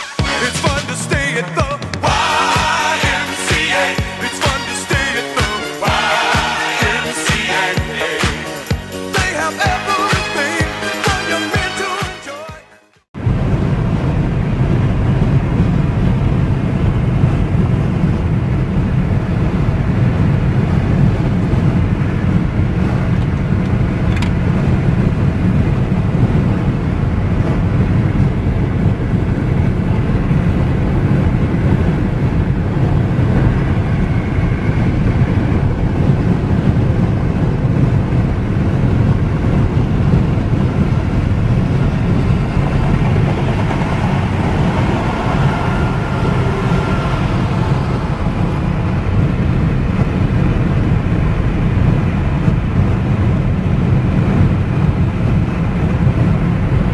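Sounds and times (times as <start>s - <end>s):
car road and engine rumble: 13.2s - 56.9s.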